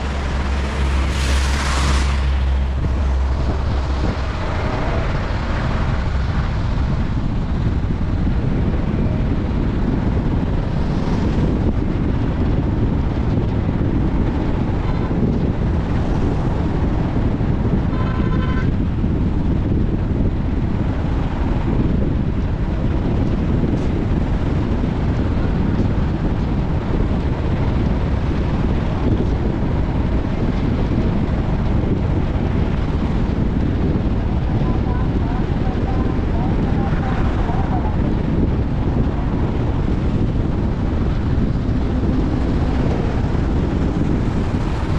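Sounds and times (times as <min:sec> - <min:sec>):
car rumbling on the move: 0:00.0 - 0:44.9
road and wind noise: 0:00.0 - 0:44.9.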